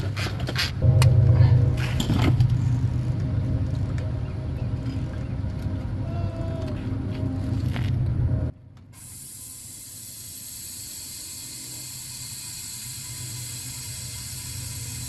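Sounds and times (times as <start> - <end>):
engine idling: 0.8 - 8.5.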